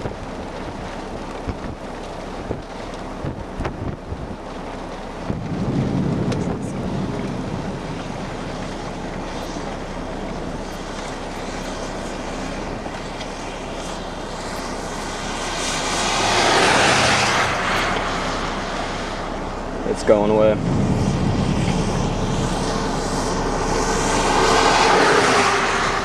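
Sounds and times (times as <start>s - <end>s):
road traffic noise: 0.0s - 26.0s
vehicle passing: 5.4s - 26.0s.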